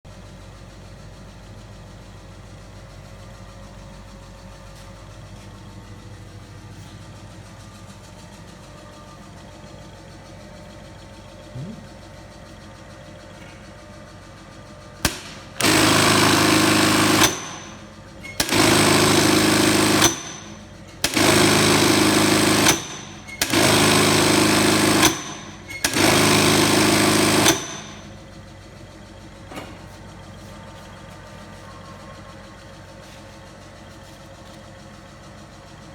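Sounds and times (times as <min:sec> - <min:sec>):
low motor hum: 0:03.1 - 0:20.0
sewing machine running: 0:15.0 - 0:28.3.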